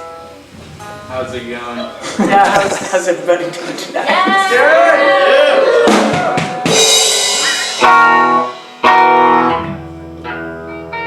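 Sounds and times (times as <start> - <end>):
low bass note: 0.5 - 3.2
strummed guitar chords: 0.5 - 3.2, 6.9 - 11.0
cymbal crash: 0.5 - 3.4, 6.7 - 9.4.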